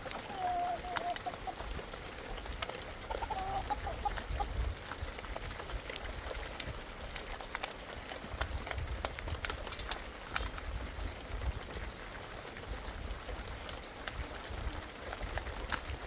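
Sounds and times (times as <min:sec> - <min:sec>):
rain with drips: 0:00.0 - 0:16.0
hen clucking: 0:00.1 - 0:01.7, 0:03.0 - 0:04.5.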